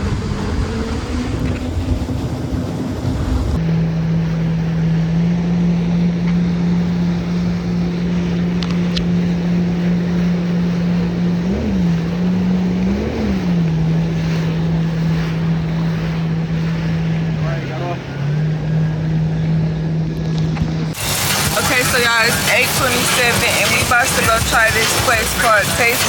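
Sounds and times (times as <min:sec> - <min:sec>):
wind on microphone: 0:00.0 - 0:04.4, 0:06.8 - 0:17.4
jet ski engine running: 0:00.0 - 0:26.0
water noise: 0:00.0 - 0:26.0.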